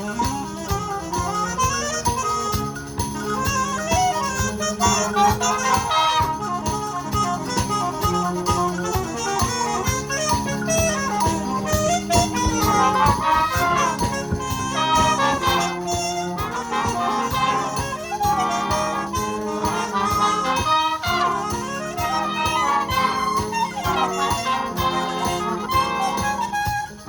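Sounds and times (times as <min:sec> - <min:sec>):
wind band playing: 0:00.0 - 0:27.0.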